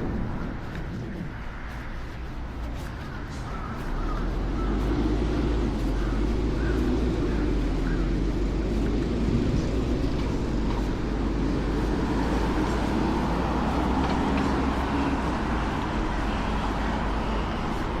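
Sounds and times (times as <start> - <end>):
low rumbling outdoor noise: 0.0 - 18.0.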